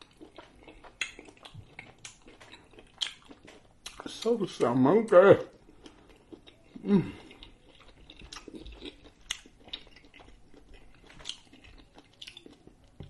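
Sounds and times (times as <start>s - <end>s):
person chewing with wet smacks: 0.0s - 13.0s
person humming: 6.8s - 7.3s.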